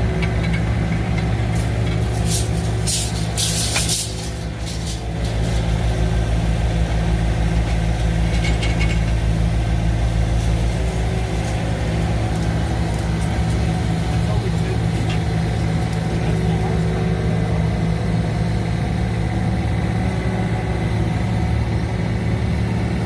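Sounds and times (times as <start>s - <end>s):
excavator engine running: 0.0s - 23.0s.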